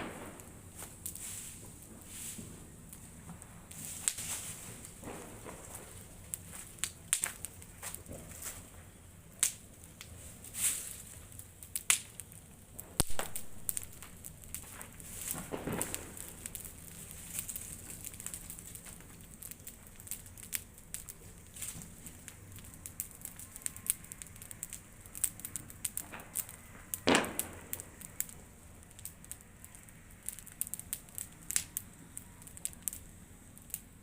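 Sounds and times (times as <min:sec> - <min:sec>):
bonfire crackling and popping: 0:00.0 - 0:34.0.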